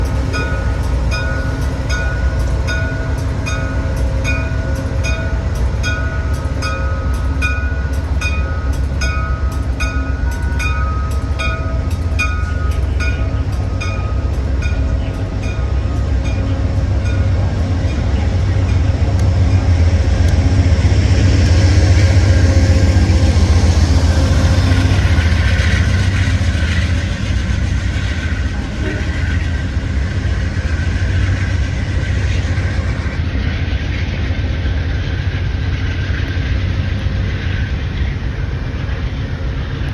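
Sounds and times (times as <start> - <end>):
locomotive bell ringing: 0.0 - 31.2
train engine rumble: 0.0 - 39.9
train rolling noise: 0.0 - 39.9.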